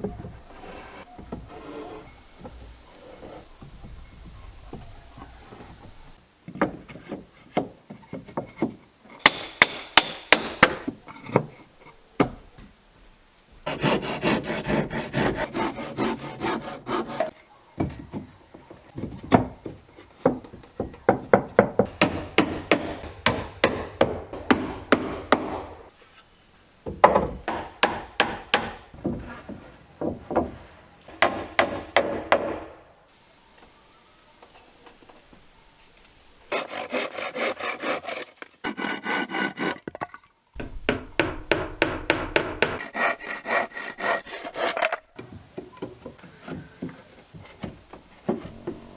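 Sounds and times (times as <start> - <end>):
hand tool rasping wood: 13.7 - 17.4, 36.5 - 39.9, 42.4 - 45.0.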